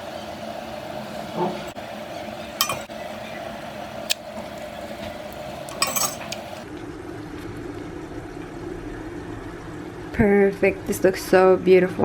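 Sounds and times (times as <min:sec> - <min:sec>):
background hum: 0:00.0 - 0:06.8
utensil clinking against dish: 0:02.6 - 0:02.9, 0:05.7 - 0:06.6.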